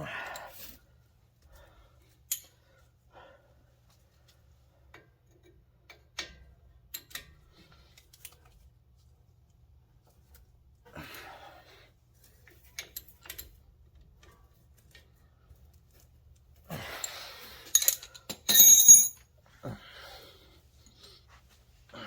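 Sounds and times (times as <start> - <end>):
light clicks of metal tools: 2.1 - 2.7
metal clattering and ringing: 17.8 - 19.2.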